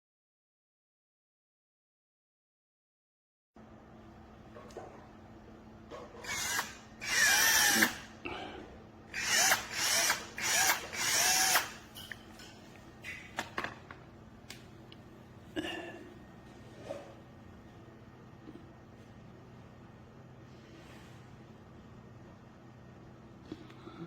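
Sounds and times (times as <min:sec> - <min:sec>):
cordless drill motor whine: 0:06.2 - 0:08.0, 0:09.1 - 0:11.8.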